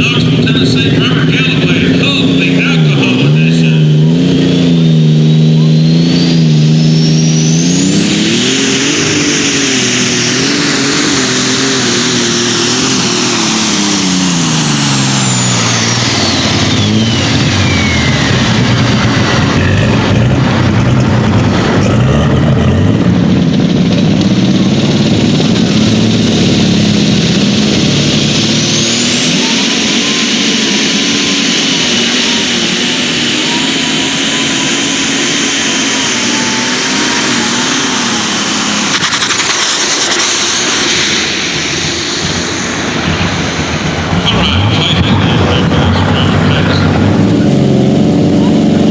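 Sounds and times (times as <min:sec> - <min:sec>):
tractor engine under load: 0:00.0 - 0:48.9
turbo whistle: 0:04.8 - 0:20.3, 0:28.4 - 0:47.1.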